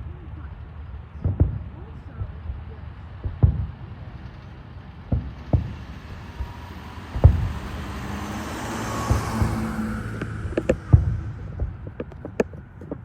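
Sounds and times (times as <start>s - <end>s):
distant fireworks booming: 0.0s - 13.0s
low rumble: 0.0s - 13.0s.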